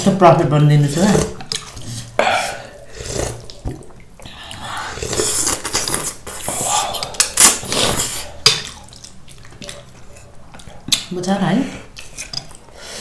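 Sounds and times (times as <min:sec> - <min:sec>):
slurping and chewing noodles: 0:00.9 - 0:11.0.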